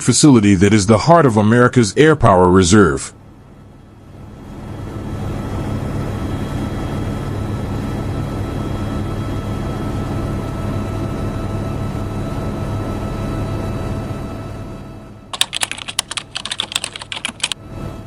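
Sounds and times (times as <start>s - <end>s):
mechanical drone with low hum: 0.0s - 18.0s
keyboard typing clicks: 15.4s - 17.6s.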